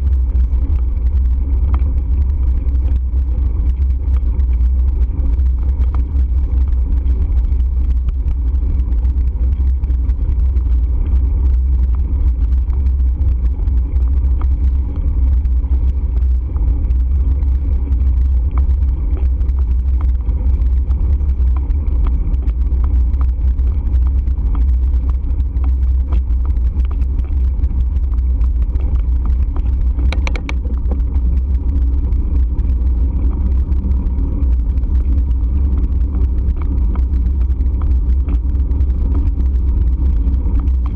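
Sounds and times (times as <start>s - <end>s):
road noise: 30.0s - 31.1s.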